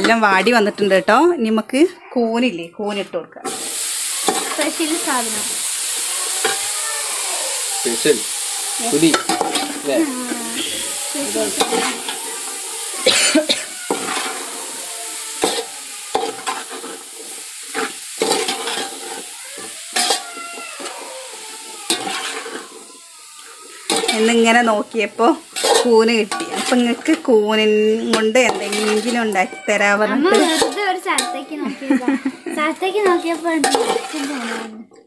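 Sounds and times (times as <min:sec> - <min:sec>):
mushrooms sizzling in oil: 0:00.0 - 0:01.8, 0:03.4 - 0:34.9
metal spoon scraping pot: 0:08.8 - 0:09.9, 0:10.5 - 0:12.3, 0:13.9 - 0:14.5, 0:15.4 - 0:19.3, 0:21.9 - 0:22.9, 0:25.4 - 0:27.4, 0:28.1 - 0:31.4, 0:33.1 - 0:34.9.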